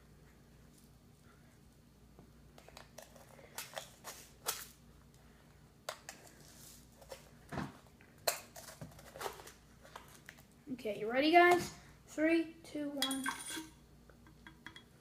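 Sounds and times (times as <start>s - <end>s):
spoon tapping on bottles: 14.2s - 14.9s.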